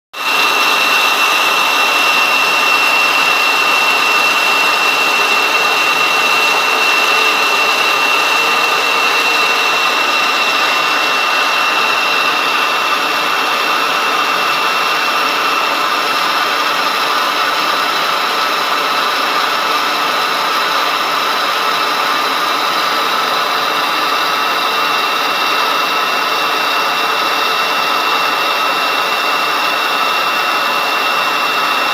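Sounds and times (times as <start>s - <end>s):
high engine whine: 0.2s - 31.9s
jet engines running: 0.2s - 31.9s.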